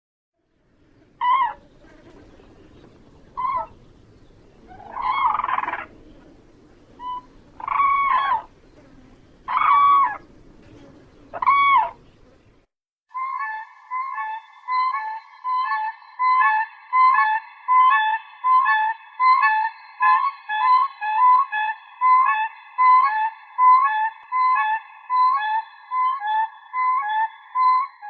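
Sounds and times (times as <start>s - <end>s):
faint low background hiss: 0.4s - 12.7s
crane calling: 1.2s - 12.4s.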